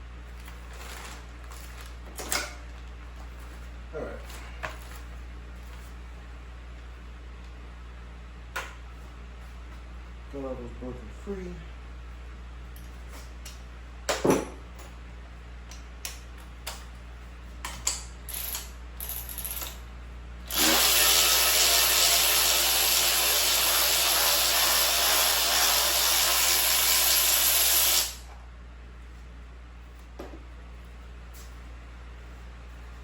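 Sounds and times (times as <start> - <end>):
power tool running: 20.5 - 28.3.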